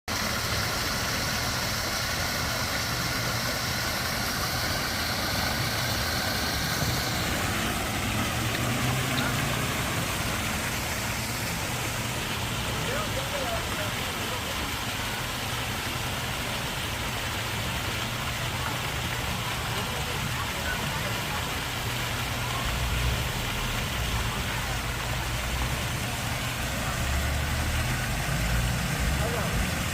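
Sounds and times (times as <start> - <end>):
rain-like hiss: 0.1 - 29.9
vehicle engine low hum: 2.8 - 12.6.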